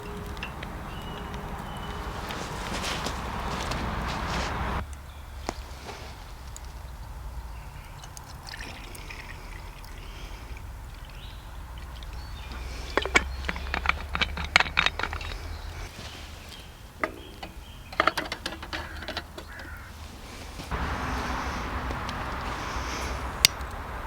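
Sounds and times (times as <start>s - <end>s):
cooking gear clinking and knocking: 0.0s - 4.2s, 11.8s - 19.9s.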